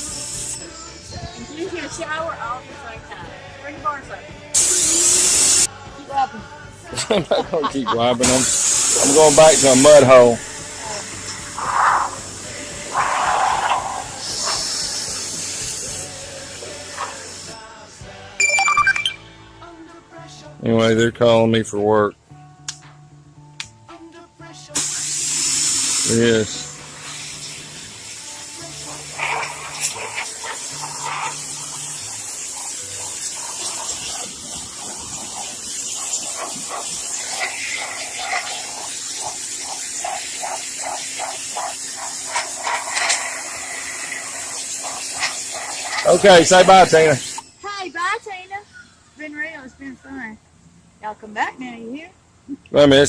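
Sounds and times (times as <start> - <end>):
pressure washer water jet hiss: 0.0 - 0.7, 4.6 - 5.8, 8.2 - 17.8, 24.8 - 47.5.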